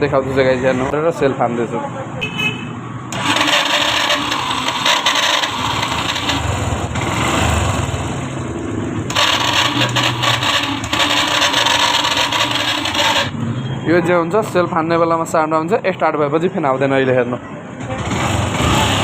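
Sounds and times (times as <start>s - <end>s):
starter motor grinding: 3.1s - 8.2s, 9.0s - 13.4s
motorcycle engine: 3.1s - 13.8s, 17.8s - 19.0s.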